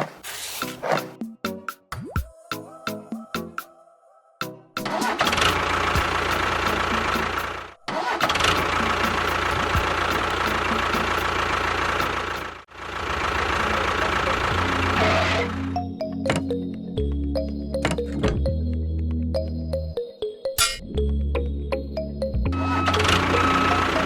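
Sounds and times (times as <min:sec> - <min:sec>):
motor running: 0:05.0 - 0:15.8, 0:22.6 - 0:24.0.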